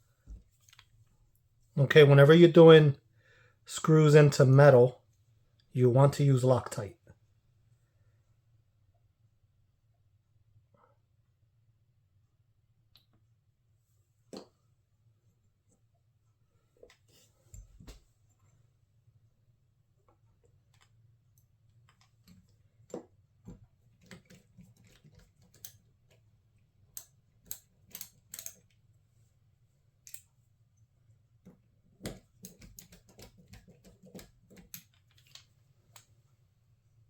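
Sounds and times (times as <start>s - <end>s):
clicks of screws and tools: 24.0s - 26.2s, 27.0s - 28.8s, 30.0s - 30.3s.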